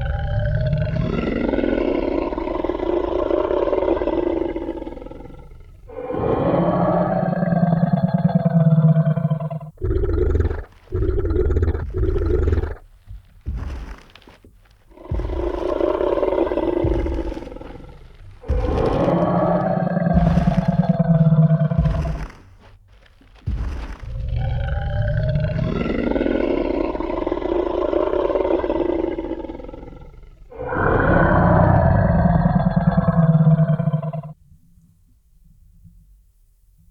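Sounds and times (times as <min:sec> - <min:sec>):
dinosaur roaring: 0:00.0 - 0:12.8, 0:14.9 - 0:22.4, 0:23.5 - 0:34.4
low thuds: 0:10.4 - 0:27.0.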